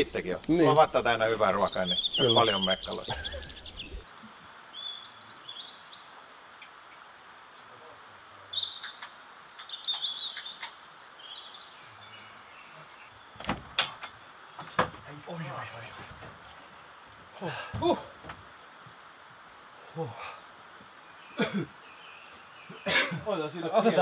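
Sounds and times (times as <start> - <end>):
small birds chirping: 0.0 - 24.0
sharp knocks: 13.4 - 15.1.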